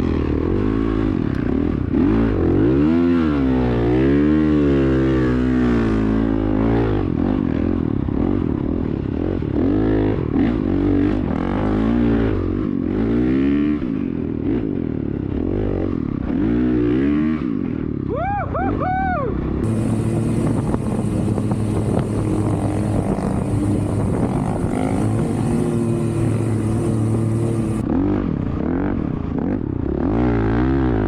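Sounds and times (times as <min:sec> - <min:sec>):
dirt bike engine revving: 0:19.6 - 0:28.9.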